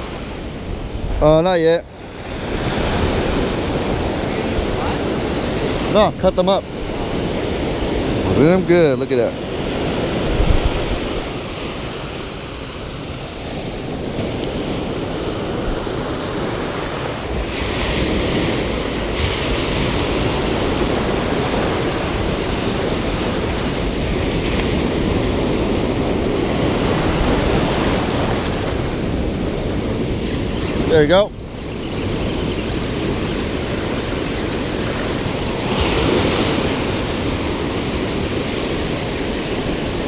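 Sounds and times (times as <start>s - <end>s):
ocean surf breaking: 0.0s - 40.0s.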